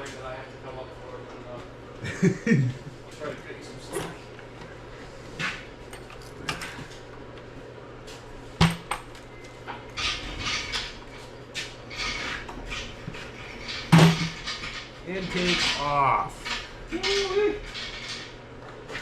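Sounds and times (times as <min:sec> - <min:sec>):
metal tools clanking and rattling: 0:09.9 - 0:19.0.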